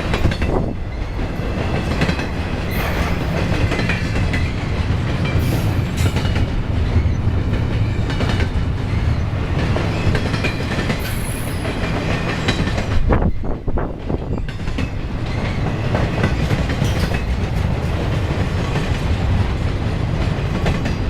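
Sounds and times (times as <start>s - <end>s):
freight train wheels rumbling: 0.0s - 21.0s
wheels clicking over rail joints: 14.0s - 21.0s.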